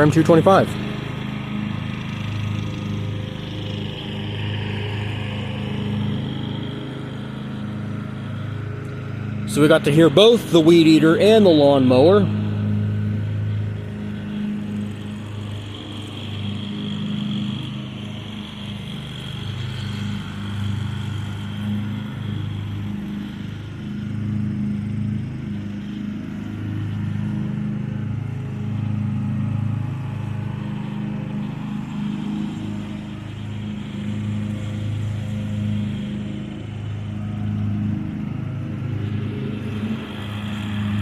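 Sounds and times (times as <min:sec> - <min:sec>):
riding lawn mower engine: 0:00.0 - 0:41.0
string trimmer engine whine: 0:00.0 - 0:41.0.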